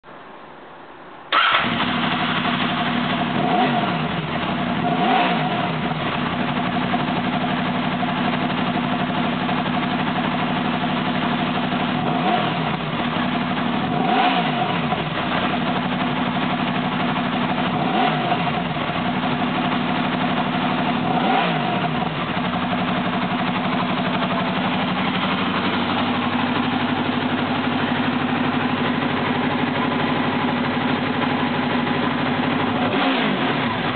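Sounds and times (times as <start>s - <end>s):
motorcycle engine revving and idling: 1.3s - 33.9s.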